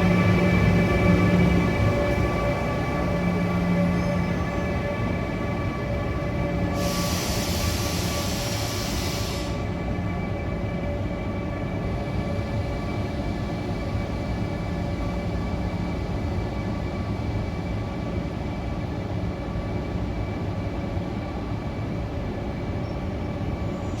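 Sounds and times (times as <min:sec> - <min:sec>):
locomotive low rumble: 0:00.0 - 0:06.7.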